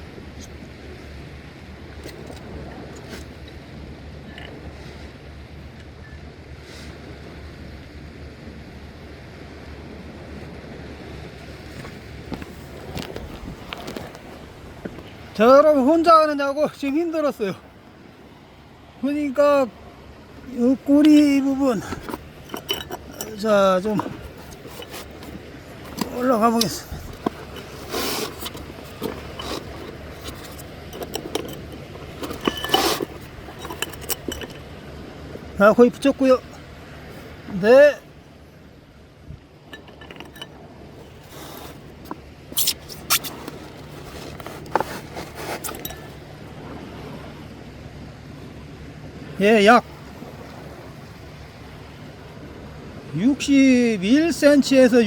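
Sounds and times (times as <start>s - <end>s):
sea surf: 0.0s - 55.0s
wind: 0.0s - 55.0s
handling noise: 11.6s - 17.6s, 19.0s - 37.3s, 39.6s - 46.2s
loud rushes of scraping: 20.8s - 34.7s, 39.8s - 46.1s.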